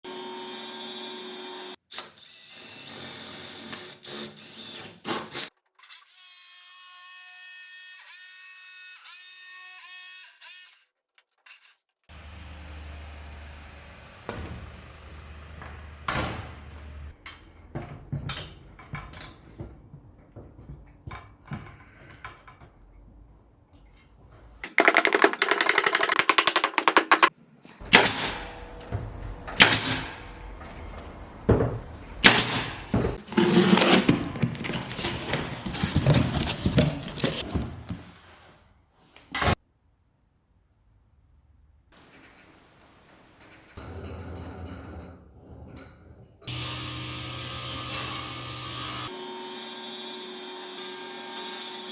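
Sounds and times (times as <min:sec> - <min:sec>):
wood and tools knocking: 0:24.6 - 0:37.8
power tool buzzing: 0:46.5 - 0:51.9.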